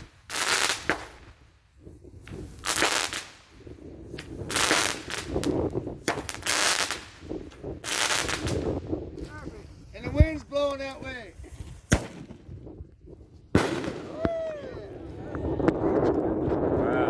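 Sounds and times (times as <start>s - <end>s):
firework cake firing shots: 0.0s - 1.4s, 4.2s - 8.8s, 11.6s - 12.7s, 13.5s - 14.6s.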